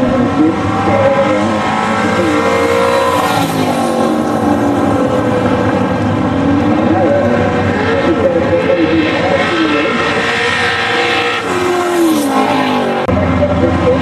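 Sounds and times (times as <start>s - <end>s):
car engine revving hard: 0.0s - 14.0s.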